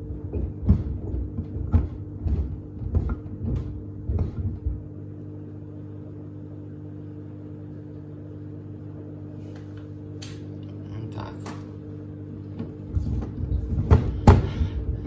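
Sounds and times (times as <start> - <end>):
sneakers thumping in washing machine: 0.0 - 5.0, 12.4 - 15.0
washing machine motor hum: 0.0 - 15.0.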